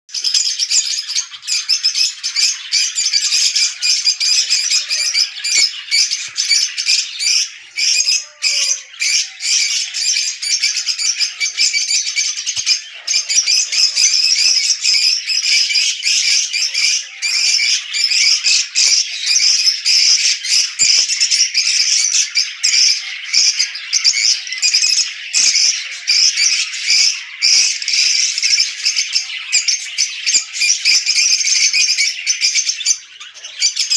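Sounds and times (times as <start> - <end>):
birds chattering and squawking: 0.1 - 33.9.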